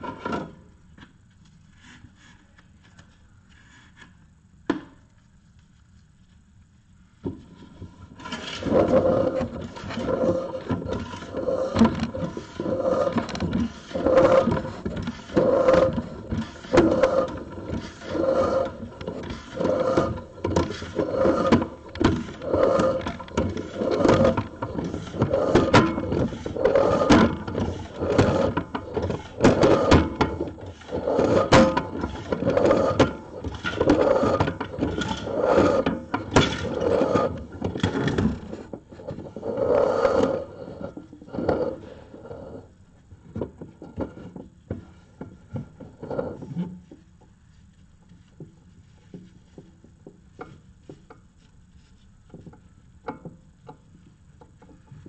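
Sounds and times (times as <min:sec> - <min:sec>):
cable scraping inside metal duct: 0:07.6 - 0:42.8.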